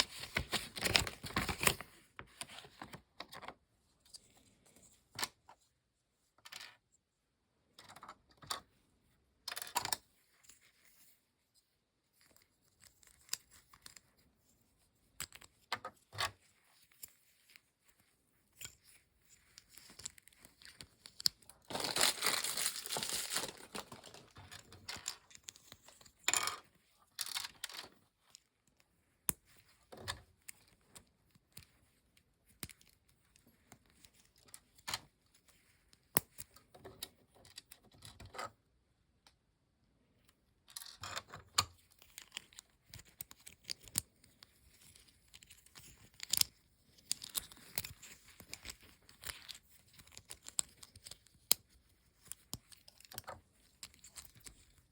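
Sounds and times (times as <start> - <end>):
packaging torn and crinkled: 21.4 - 24.7.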